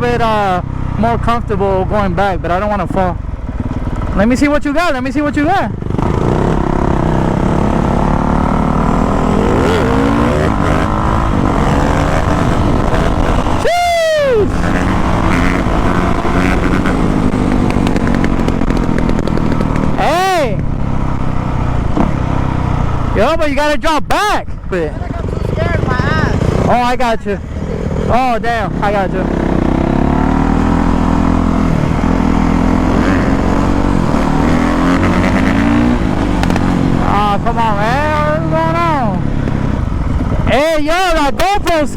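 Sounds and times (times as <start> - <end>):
motorbike revving hard: 0.0 - 23.4, 24.8 - 41.3
motocross bike engines running: 0.0 - 41.9
wind noise: 5.9 - 20.0, 39.2 - 41.7.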